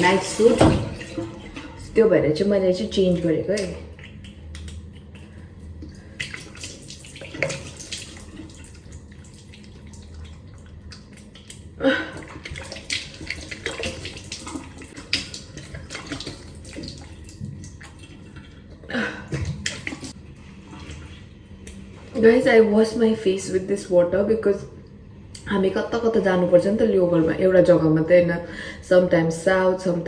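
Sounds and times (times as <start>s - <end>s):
water splashing in a sink: 0.0s - 22.7s.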